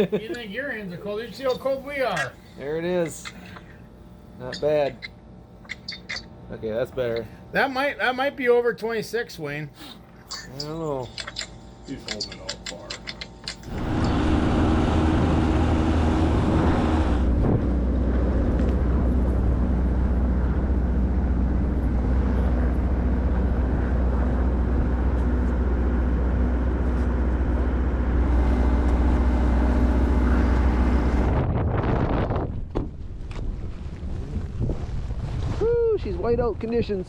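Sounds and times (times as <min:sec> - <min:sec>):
vehicle engine running: 0:13.6 - 0:31.6
wind rumbling on microphone: 0:13.7 - 0:25.2, 0:30.2 - 0:37.0.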